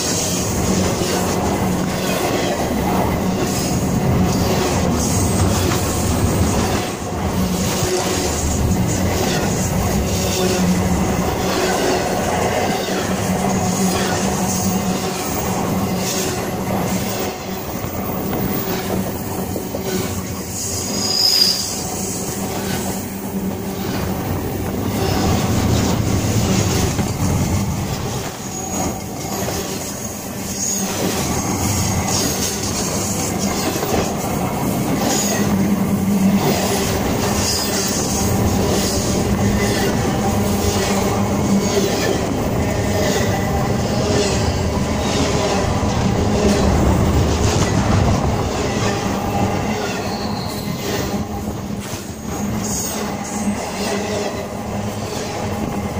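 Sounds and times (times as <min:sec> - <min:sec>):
train wheels rumbling on rail: 0:00.0 - 0:55.9
high wheel squeals: 0:19.8 - 0:23.2, 0:49.5 - 0:51.2.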